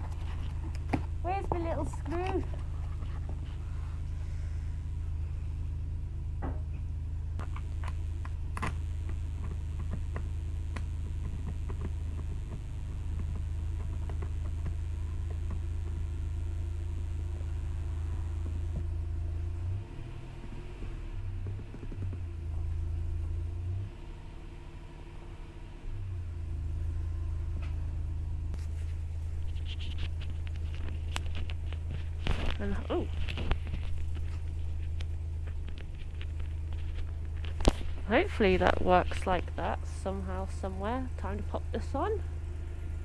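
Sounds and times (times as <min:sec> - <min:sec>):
steady low rumble: 0:07.0 - 0:19.8.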